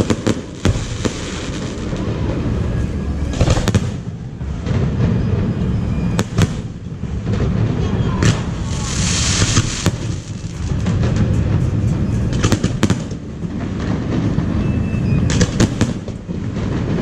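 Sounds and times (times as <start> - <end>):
firework hiss: 0.0 - 4.1, 8.3 - 17.0
low rumble: 0.0 - 15.3
firework bangs and crackles: 0.0 - 17.0.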